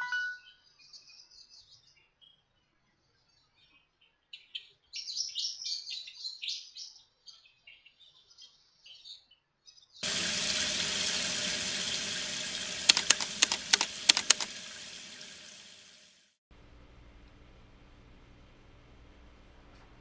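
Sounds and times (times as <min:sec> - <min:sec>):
sharp clicks: 0:10.0 - 0:16.0
tap water running into sink: 0:10.0 - 0:16.2.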